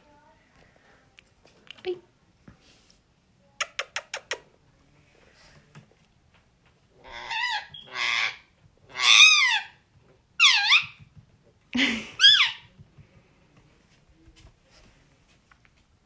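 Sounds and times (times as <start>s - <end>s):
sharp clicks: 3.6s - 4.4s.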